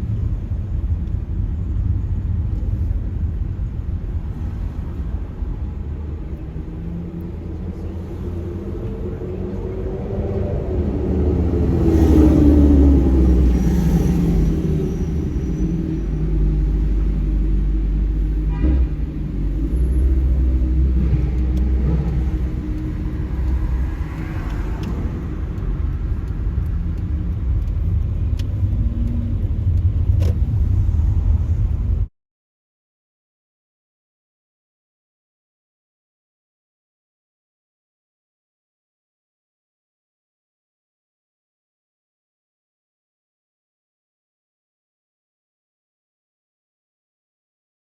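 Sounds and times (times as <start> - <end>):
low rumble of traffic: 0.0 - 32.1
vehicle passing: 4.4 - 31.9.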